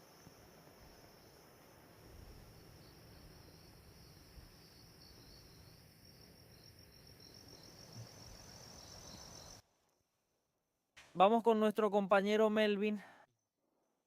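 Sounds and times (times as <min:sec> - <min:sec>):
insects chirping: 0:00.0 - 0:10.1.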